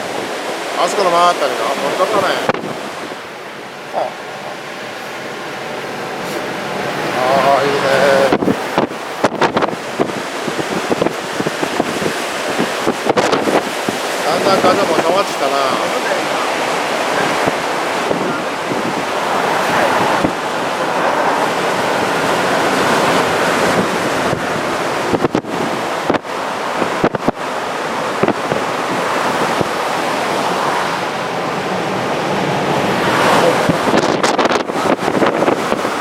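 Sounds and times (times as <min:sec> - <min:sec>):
heavy surf: 0:00.0 - 0:36.0
wind gusts buffeting microphone: 0:00.0 - 0:36.0
wind rushing: 0:00.0 - 0:36.0.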